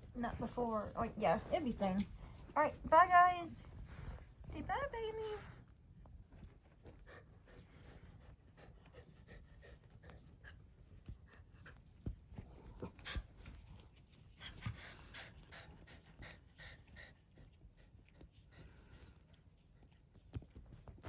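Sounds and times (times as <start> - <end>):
dog panting and sniffing: 0.0 - 21.0
soft rustles and taps: 19.9 - 21.0.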